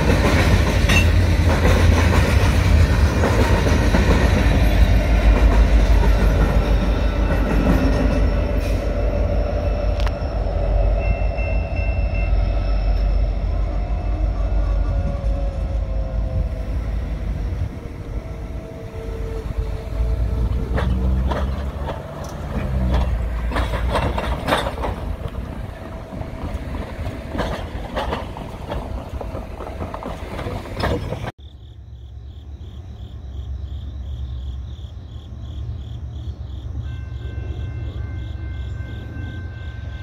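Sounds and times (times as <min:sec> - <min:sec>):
train wheels rumbling on rail: 0:00.0 - 0:31.4.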